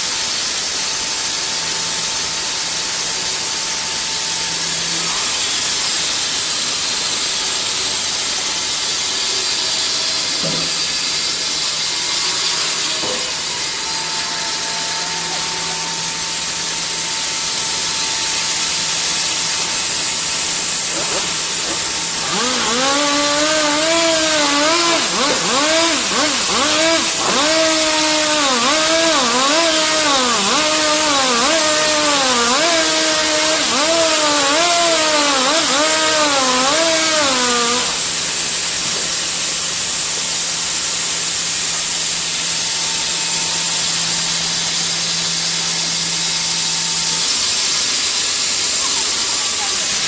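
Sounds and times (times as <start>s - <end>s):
power saw cutting wood: 0.0s - 50.0s.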